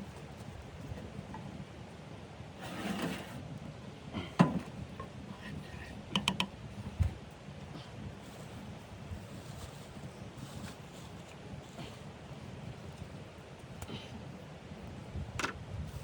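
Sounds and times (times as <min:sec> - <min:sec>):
low wind noise: 0:04.8 - 0:16.0
rustle: 0:08.1 - 0:13.8.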